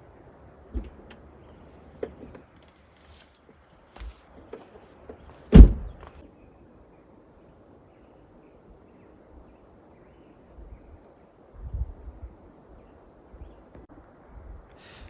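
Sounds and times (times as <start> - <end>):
vehicle door shutting: 5.5 - 6.0.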